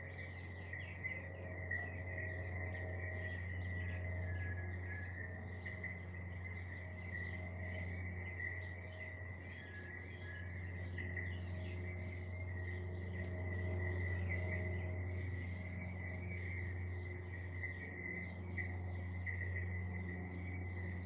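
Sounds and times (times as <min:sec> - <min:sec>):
birds twittering: 0:00.0 - 0:21.0
constant low hum: 0:00.0 - 0:21.0.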